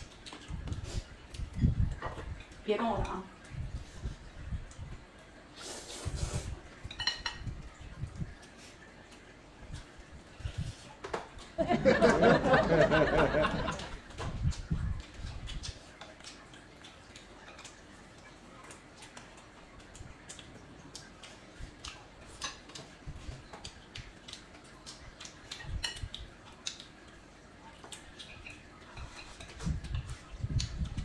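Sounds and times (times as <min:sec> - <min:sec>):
chewing and mouth clicks: 0:00.0 - 0:02.6, 0:14.0 - 0:31.0.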